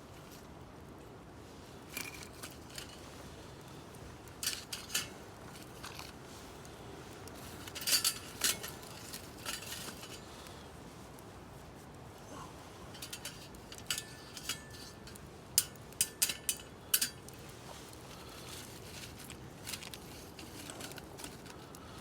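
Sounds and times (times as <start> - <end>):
metal cookware clinking: 7.7 - 10.2, 12.9 - 17.3.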